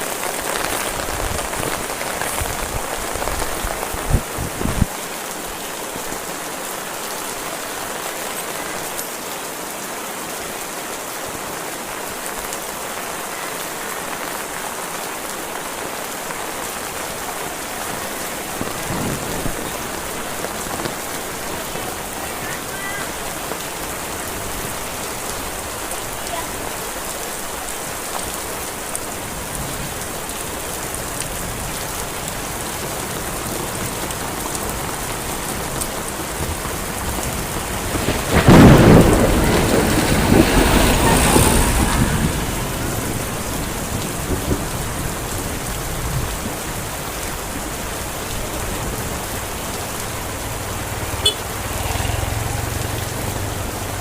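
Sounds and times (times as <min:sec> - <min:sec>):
heavy rain falling: 0:00.0 - 0:54.0
thunder clap rumbling: 0:17.9 - 0:24.9, 0:36.3 - 0:46.9.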